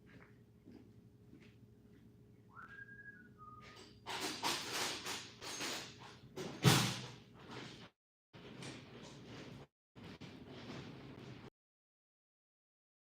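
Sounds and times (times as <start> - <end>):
two-note whistle: 2.5 - 3.8
tools clattering: 3.7 - 7.8.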